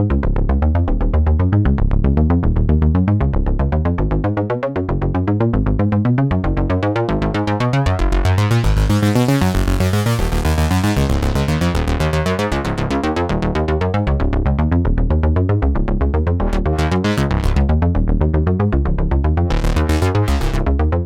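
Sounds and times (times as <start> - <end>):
synth bass notes: 0.0 - 21.0
synthesizer sequenced pattern: 16.1 - 17.8, 19.5 - 20.9.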